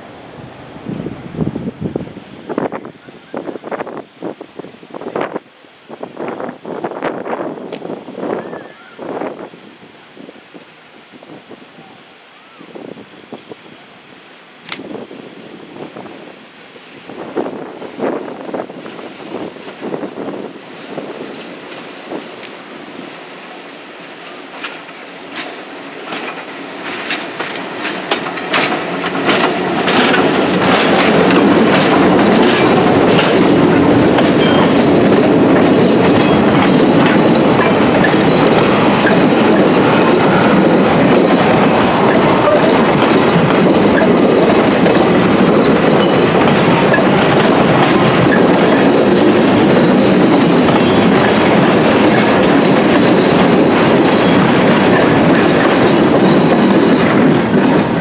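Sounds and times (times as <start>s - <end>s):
train rolling past: 0.0s - 58.0s
wheels clicking over rail joints: 24.2s - 58.0s.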